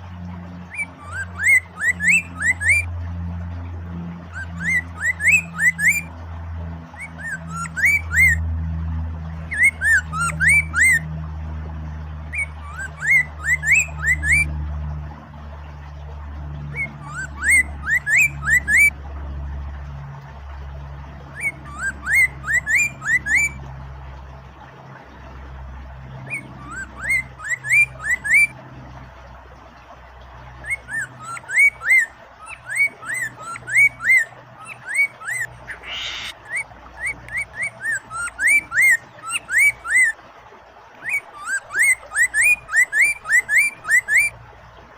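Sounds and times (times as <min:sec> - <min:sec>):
flowing water rushing: 0:00.0 - 0:44.9
bird whistled song: 0:00.6 - 0:02.9, 0:04.3 - 0:06.1, 0:07.0 - 0:08.4, 0:09.4 - 0:11.1, 0:12.3 - 0:14.5, 0:16.6 - 0:19.0, 0:21.3 - 0:23.6, 0:26.2 - 0:28.5, 0:30.6 - 0:40.2, 0:41.0 - 0:44.3.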